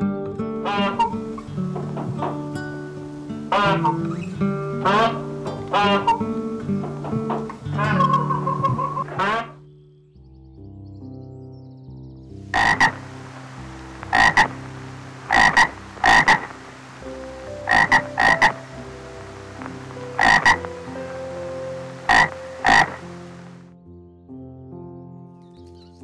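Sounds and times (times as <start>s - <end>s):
steady hiss: 0.0s - 9.0s, 12.3s - 23.8s
croaking animal calls: 0.6s - 2.5s, 3.1s - 9.6s, 12.5s - 23.6s.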